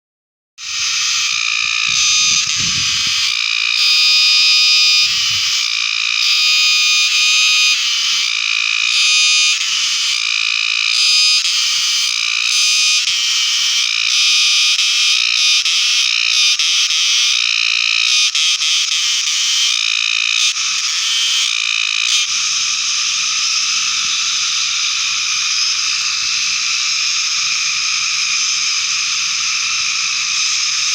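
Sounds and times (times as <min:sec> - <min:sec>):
cicada buzzing: 0:00.6 - 0:30.9.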